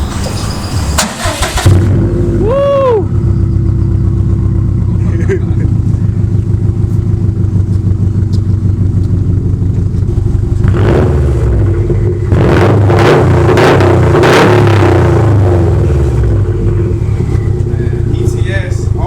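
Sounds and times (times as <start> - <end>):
car engine idling and revving: 0.0 - 19.0.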